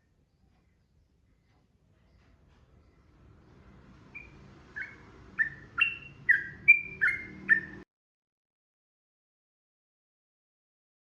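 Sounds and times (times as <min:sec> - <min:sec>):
bird singing whistled notes: 0:04.1 - 0:07.8.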